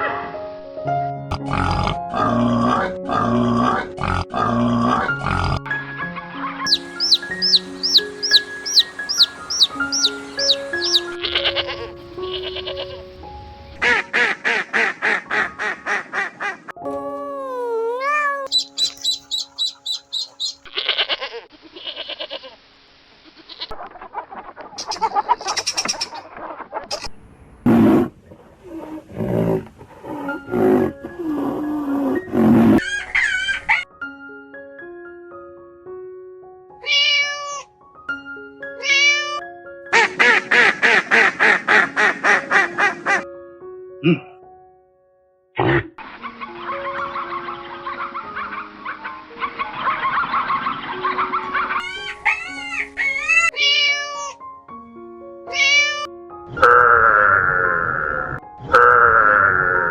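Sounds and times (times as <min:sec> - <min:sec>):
plucked background melody: 0:05.1 - 0:20.7, 0:30.1 - 0:45.4, 0:46.0 - 0:59.9
high animal peeps: 0:06.7 - 0:11.8, 0:17.4 - 0:22.6, 0:23.3 - 0:27.1
harsh animal cries: 0:06.7 - 0:12.9, 0:17.4 - 0:22.6, 0:36.8 - 0:37.7, 0:38.8 - 0:39.4, 0:51.8 - 0:54.4, 0:55.5 - 0:59.9
drawn-out pitched animal call: 0:06.7 - 0:13.0, 0:18.1 - 0:22.6, 0:56.5 - 0:59.9.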